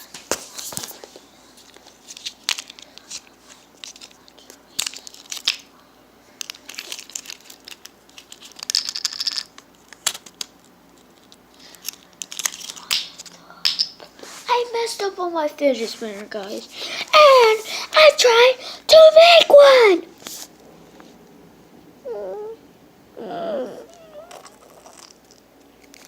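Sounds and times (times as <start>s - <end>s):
material crinkling and tearing: 6.4s - 13.3s.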